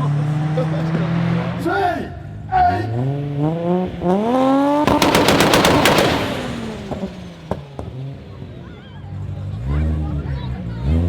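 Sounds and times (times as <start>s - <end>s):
car engine revving: 2.8s - 8.5s
exhaust pops and bangs: 4.9s - 8.4s.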